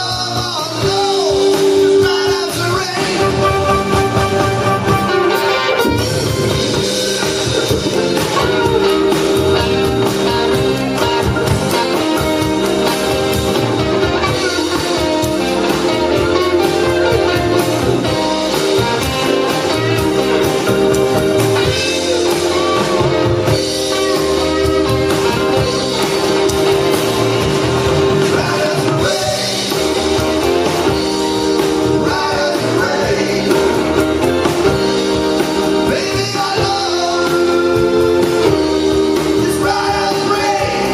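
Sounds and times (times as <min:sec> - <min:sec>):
drums: 0:00.0 - 0:40.9
electric guitar: 0:00.0 - 0:40.9
person singing: 0:28.1 - 0:30.3, 0:31.5 - 0:34.4, 0:35.7 - 0:40.9.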